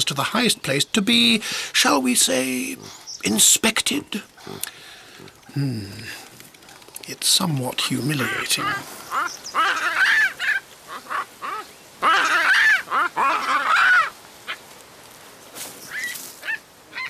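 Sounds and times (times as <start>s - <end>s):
baboons calling: 1.4s - 6.8s, 7.9s - 14.7s, 15.8s - 17.0s.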